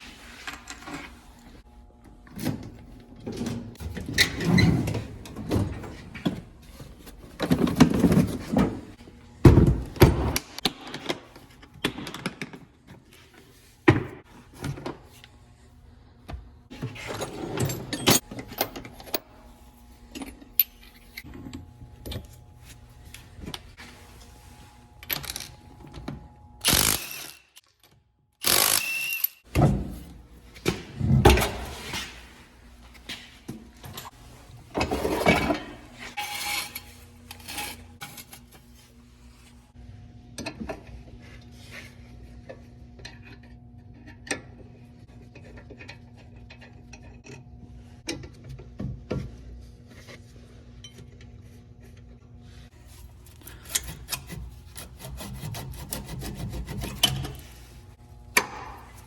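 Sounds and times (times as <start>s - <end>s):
tools and car parts clanking: 16.7s - 19.2s.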